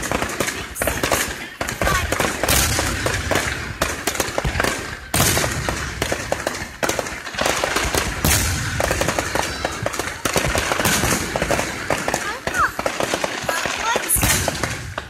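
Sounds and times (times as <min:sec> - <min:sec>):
booming firework burst: 0:00.0 - 0:15.0
fireworks bangs and crackling: 0:00.0 - 0:15.0.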